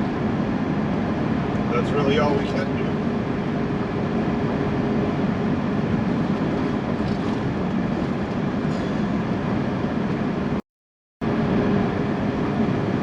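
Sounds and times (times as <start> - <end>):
truck engine and road rumble: 0.0 - 10.6, 11.2 - 13.0.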